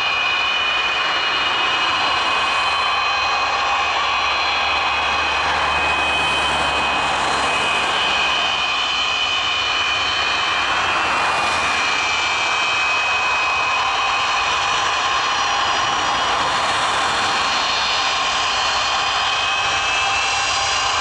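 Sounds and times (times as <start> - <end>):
jet engines roaring with whine: 0.0 - 21.0.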